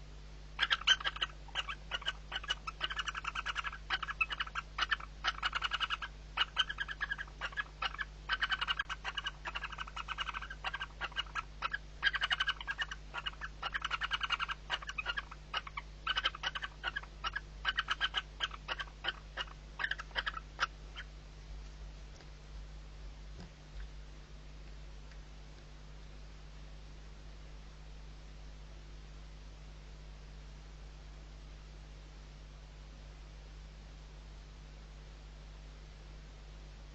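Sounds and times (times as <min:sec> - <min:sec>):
owl chick pulsed begging calls: 0:00.6 - 0:21.2.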